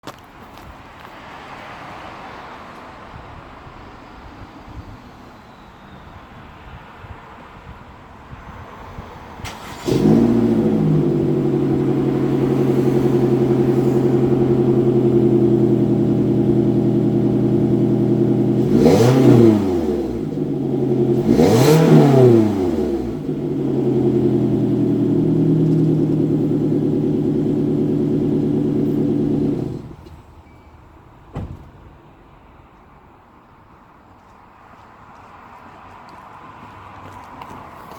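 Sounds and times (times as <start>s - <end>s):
engine starting: 9.3s - 11.1s
car engine idling and revving: 9.4s - 30.5s.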